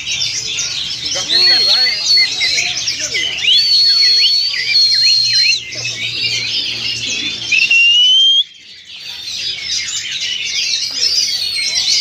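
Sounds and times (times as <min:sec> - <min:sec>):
songbirds singing in chorus: 0:00.0 - 0:12.0.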